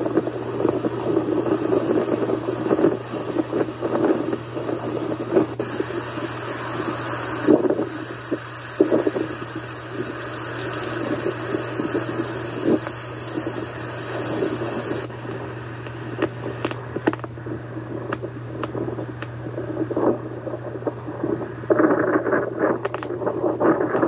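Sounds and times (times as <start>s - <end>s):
storm water rushing: 0.0s - 15.1s
steady low hum: 0.0s - 24.0s.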